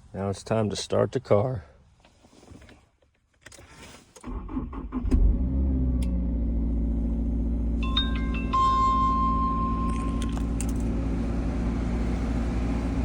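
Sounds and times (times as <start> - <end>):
car engine cranking and idling: 4.2 - 13.0
short electronic beeps: 7.8 - 10.6
steady high tone: 7.8 - 11.6.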